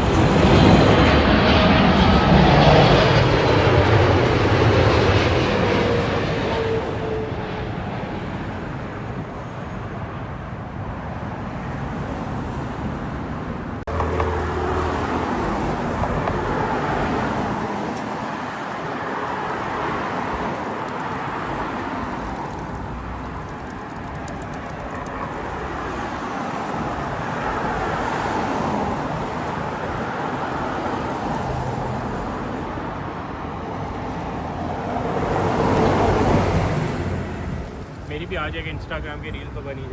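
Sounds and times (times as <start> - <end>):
falling jet whine: 0.0 - 9.5
jet airliner roar: 0.0 - 39.9.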